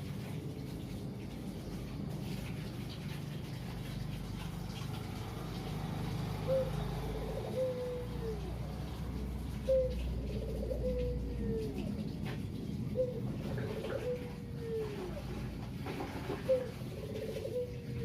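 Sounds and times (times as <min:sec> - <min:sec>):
dove cooing: 0:06.2 - 0:18.0.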